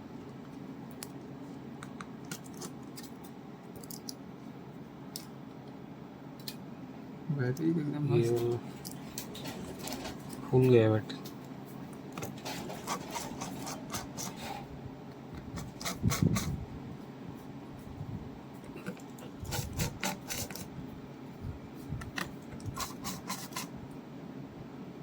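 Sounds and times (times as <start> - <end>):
repair tool scraping and clicking: 18.8 - 20.7, 22.0 - 23.7.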